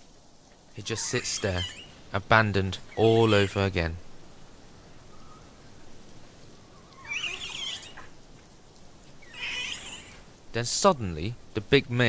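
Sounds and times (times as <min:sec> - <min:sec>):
faint background hiss: 0:00.0 - 0:12.0
young monkey calling: 0:00.8 - 0:02.1, 0:02.8 - 0:03.8, 0:06.7 - 0:08.1, 0:09.2 - 0:10.3.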